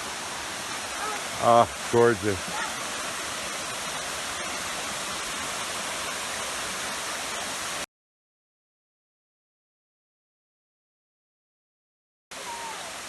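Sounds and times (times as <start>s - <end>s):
waterfall rushing: 0.0s - 7.9s, 12.3s - 13.0s.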